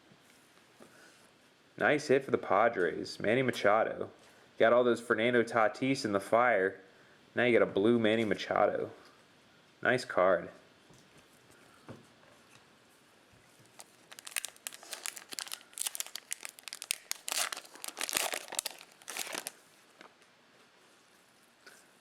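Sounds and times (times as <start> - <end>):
foil wrapper tearing and crinkling: 13.6 - 19.6.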